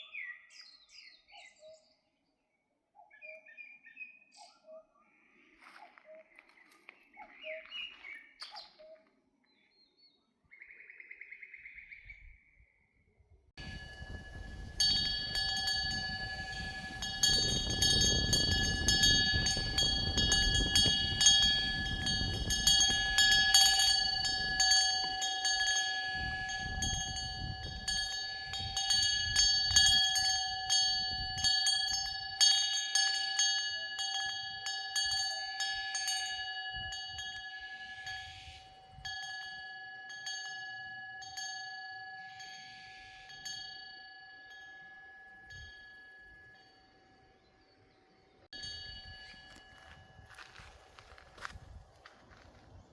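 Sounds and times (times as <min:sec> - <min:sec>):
wind gust rumble: 0:13.6 - 0:25.1
metal wind bell clinking: 0:13.6 - 0:47.6, 0:48.5 - 0:52.9.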